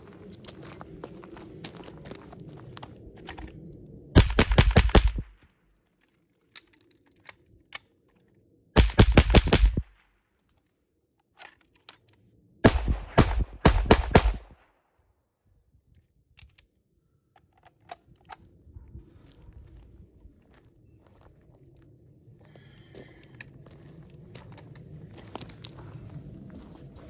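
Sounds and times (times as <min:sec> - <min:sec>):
suppressed gunshots: 0:04.2 - 0:05.3, 0:08.8 - 0:09.9, 0:12.6 - 0:14.6.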